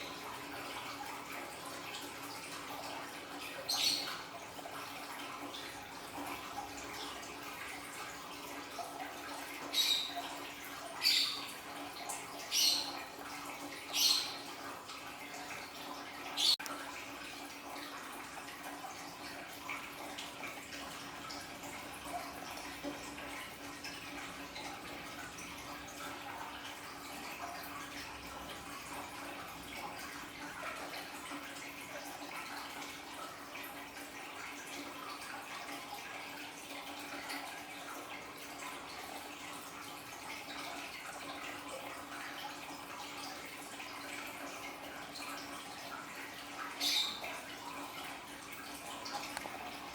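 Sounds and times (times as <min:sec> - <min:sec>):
water splashing and trickling: 0:00.0 - 0:49.9.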